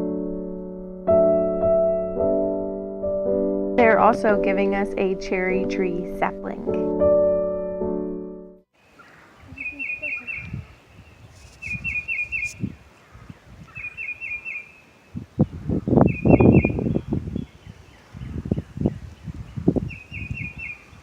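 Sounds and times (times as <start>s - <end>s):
songbird singing: 8.8s - 21.0s.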